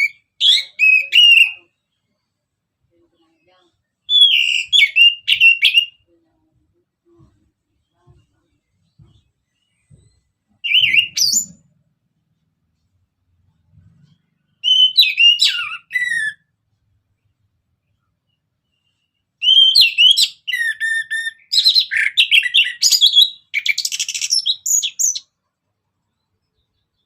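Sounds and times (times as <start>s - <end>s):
bird singing whistled notes: 0.0s - 1.9s, 4.1s - 6.0s, 9.6s - 11.8s, 14.5s - 16.5s, 18.4s - 25.3s.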